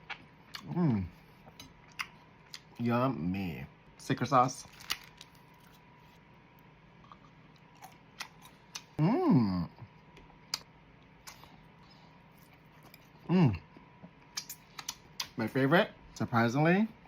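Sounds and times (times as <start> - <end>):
person humming mmm: 0.6 - 1.2, 9.0 - 9.9, 13.3 - 13.6
mouth clicks and smacks: 14.3 - 15.4.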